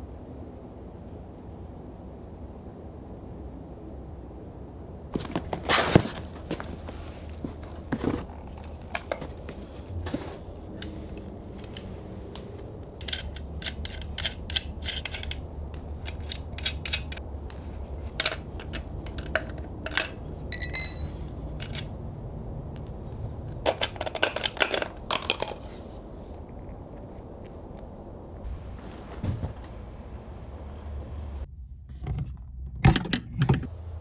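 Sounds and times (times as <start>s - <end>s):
metal hand tools clinking: 6.9s - 22.0s
tool ringing: 19.9s - 22.0s.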